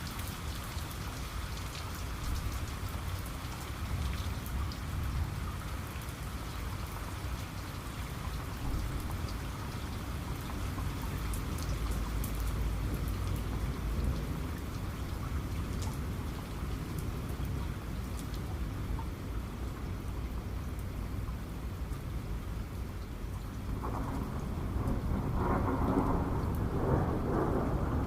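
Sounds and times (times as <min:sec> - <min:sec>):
raindrops striking close by: 0:00.0 - 0:28.0
steady rain falling: 0:00.0 - 0:28.0
low rumble of thunder: 0:02.2 - 0:07.0, 0:08.2 - 0:18.8, 0:23.4 - 0:28.0.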